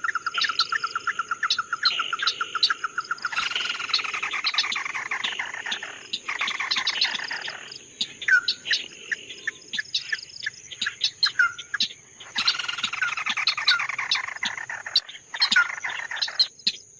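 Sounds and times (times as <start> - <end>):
songbird chattering trill and chirps: 0.0 - 16.9.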